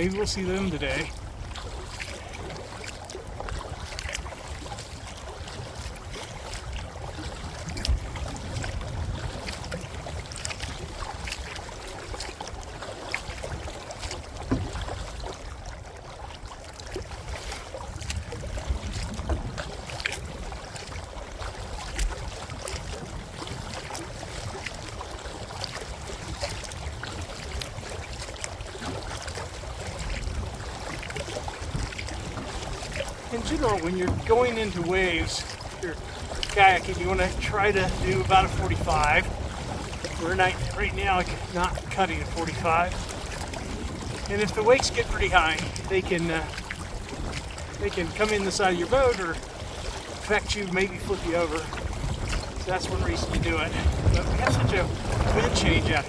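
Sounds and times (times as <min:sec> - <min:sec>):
paddle splashes and knocks: 0:00.0 - 0:56.0
water lapping: 0:00.0 - 0:56.0
wind buffeting microphone: 0:05.4 - 0:11.4, 0:29.8 - 0:49.8, 0:50.6 - 0:56.0.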